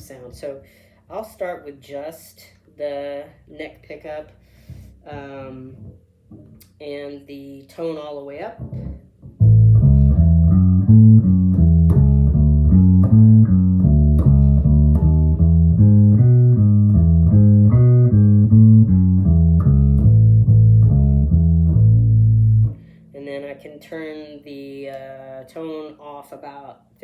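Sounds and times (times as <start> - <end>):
electric bass plucked notes: 8.6 - 24.6.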